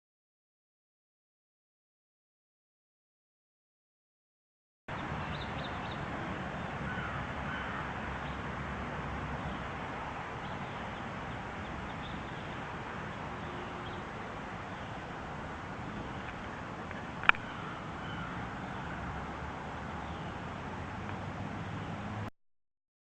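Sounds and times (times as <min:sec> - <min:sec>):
steady rushing noise: 0:04.9 - 0:22.3
faint bird calls: 0:05.0 - 0:08.4, 0:10.4 - 0:15.1, 0:15.9 - 0:20.4.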